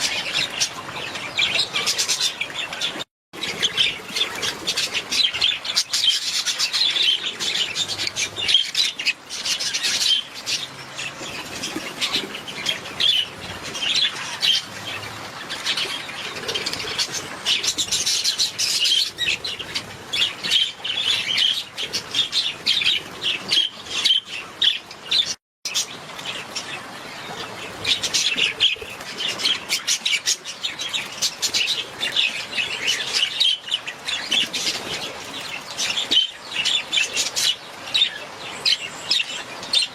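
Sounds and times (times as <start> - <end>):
budgerigars chirping and chattering: 0.0 - 25.9.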